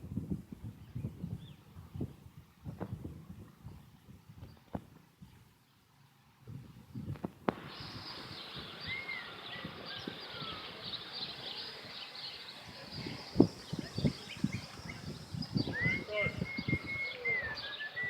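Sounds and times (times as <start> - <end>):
outdoor background noise: 0.0 - 18.0
small birds chirping: 6.8 - 18.0.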